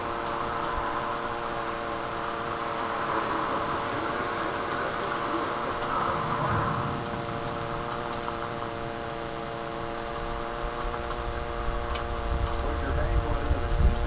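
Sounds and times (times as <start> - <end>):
droning hum: 0.0 - 14.0
steady rain hiss: 0.0 - 14.0
wind rumble on microphone: 0.0 - 14.0.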